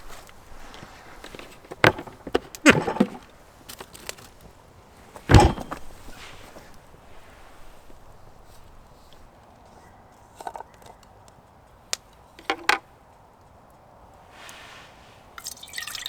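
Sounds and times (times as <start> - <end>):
hard objects knocking: 1.7 - 3.3, 5.3 - 6.0
heavy thump: 1.7 - 3.3, 5.3 - 6.6.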